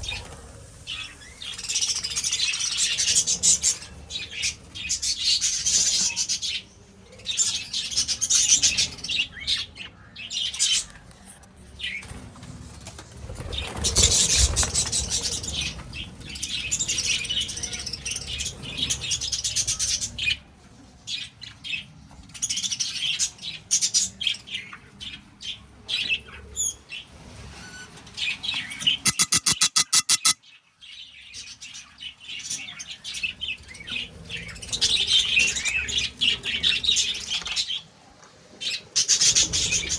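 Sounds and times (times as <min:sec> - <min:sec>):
budgies chattering and chirping: 0:29.1 - 0:30.4
rapid sharp ticks: 0:29.1 - 0:30.4.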